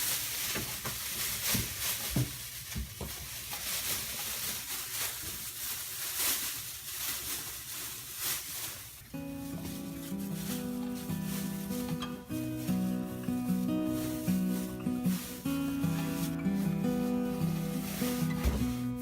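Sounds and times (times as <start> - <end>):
fabric rubbing on foam: 4.1 - 19.0.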